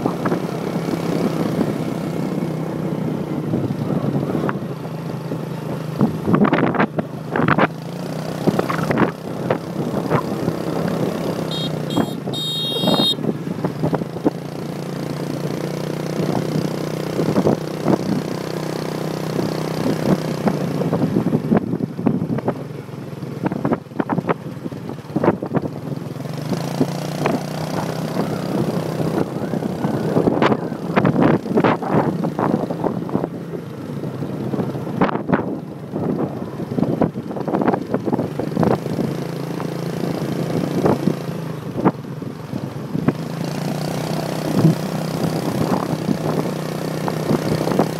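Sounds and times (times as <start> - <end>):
motorbike engine running: 0.0 - 35.0.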